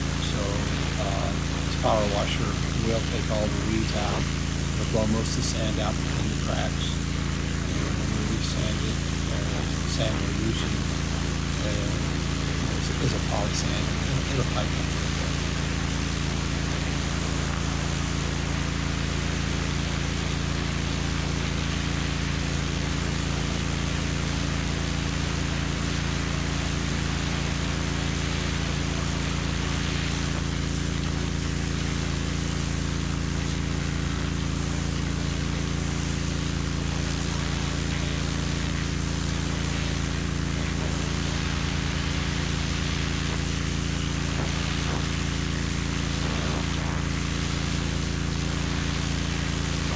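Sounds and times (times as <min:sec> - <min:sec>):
pressure washer motor hum: 0:00.0 - 0:18.2.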